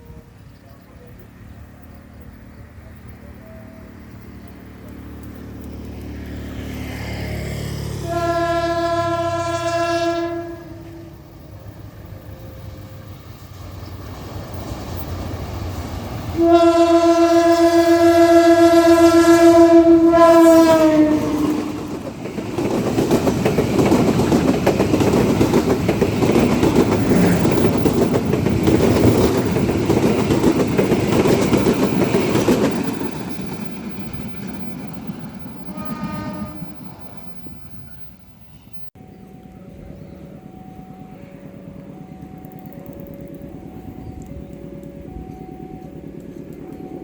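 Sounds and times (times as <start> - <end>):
train wagons rumbling and clattering: 0.0 - 47.0
locomotive horn blast: 7.8 - 11.6, 16.4 - 22.0, 35.6 - 37.2.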